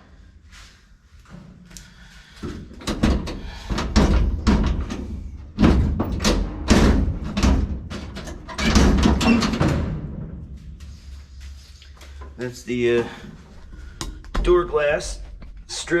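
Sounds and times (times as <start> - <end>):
hard parts clunking and knocking: 2.4 - 10.4.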